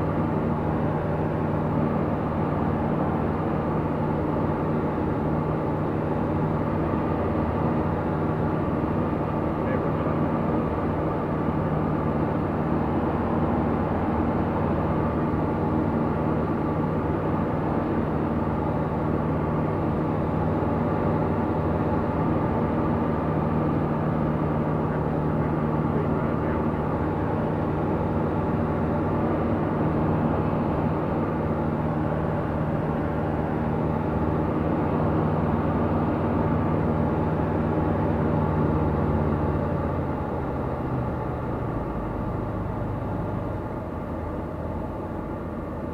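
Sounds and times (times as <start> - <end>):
light aircraft engine droning: 0.0 - 45.9.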